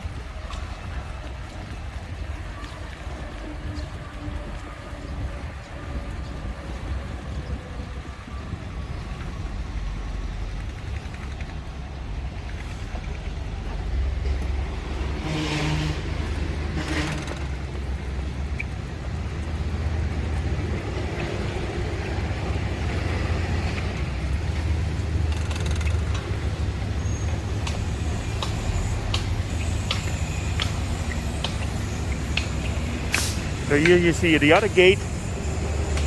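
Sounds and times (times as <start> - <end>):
road traffic rumble: 0.0 - 36.0
sharp clicks: 25.1 - 26.8.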